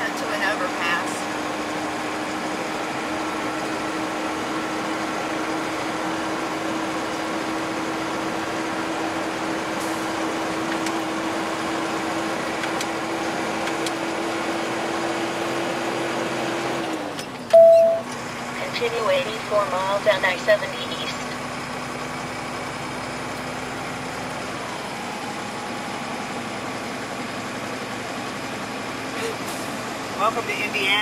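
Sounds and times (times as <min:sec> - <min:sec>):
car engine and road noise: 0:00.0 - 0:31.0
short loud beep: 0:17.5 - 0:18.1.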